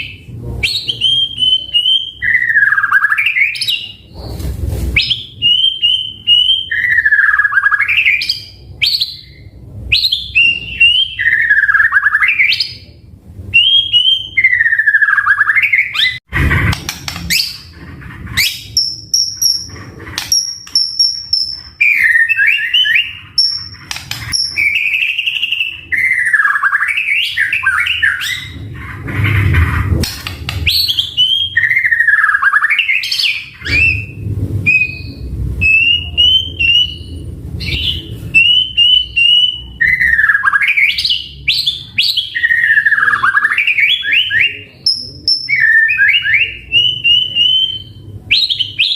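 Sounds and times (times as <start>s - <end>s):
bird whistling song: 0.0s - 4.2s, 5.0s - 12.9s, 13.5s - 16.2s, 17.1s - 17.7s, 18.4s - 28.7s, 30.2s - 48.9s
bird clicks: 23.4s - 24.5s.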